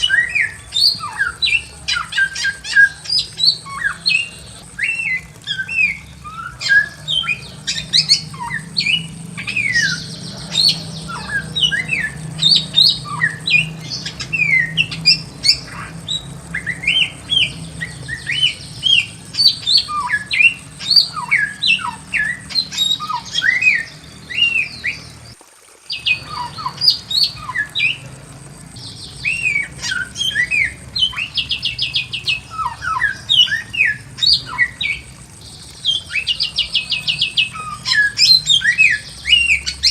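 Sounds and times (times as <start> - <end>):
bird whistling song: 0.0 - 25.3, 25.9 - 28.1, 28.7 - 39.9
rattling bird trills: 0.0 - 25.3.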